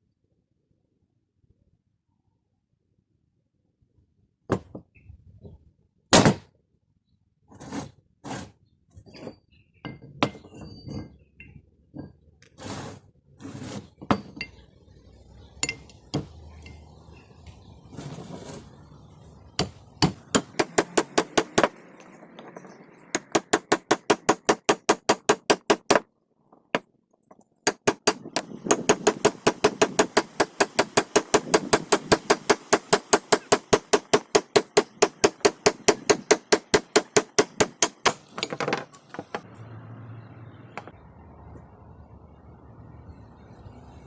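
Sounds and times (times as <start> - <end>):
hammer striking metal: 19.6 - 26.0, 27.7 - 38.5.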